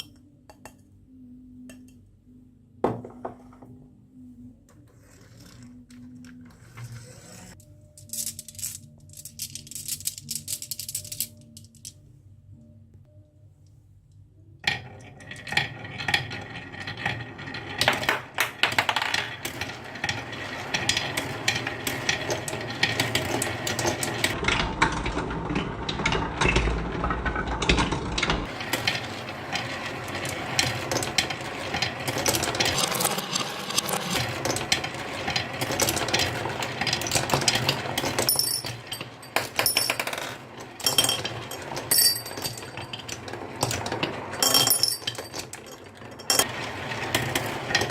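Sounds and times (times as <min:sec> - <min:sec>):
marbles rattling down wooden run: 0:28.4 - 0:47.9.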